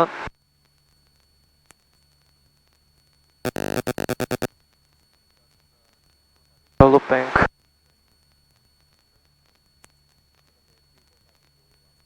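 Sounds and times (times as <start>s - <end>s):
electronic alert beeps: 3.5s - 4.5s.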